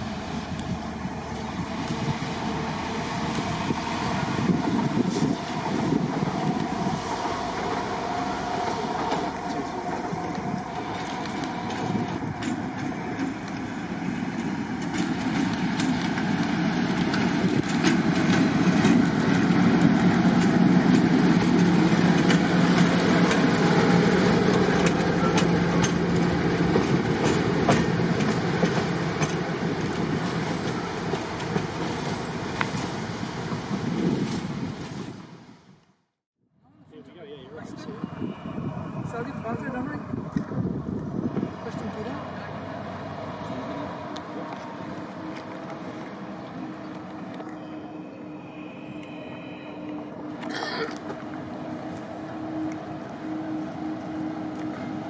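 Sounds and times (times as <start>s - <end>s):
wheels clicking over rail joints: 0.0s - 33.2s
diesel train engine passing: 0.0s - 35.9s, 36.5s - 55.0s.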